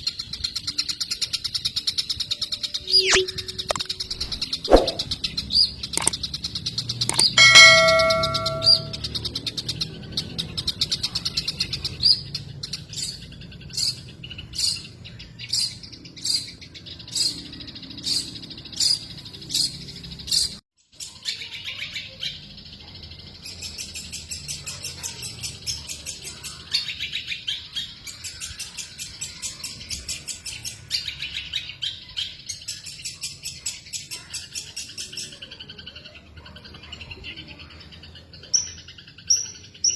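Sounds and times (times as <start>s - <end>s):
bird singing: 0.6s - 9.3s.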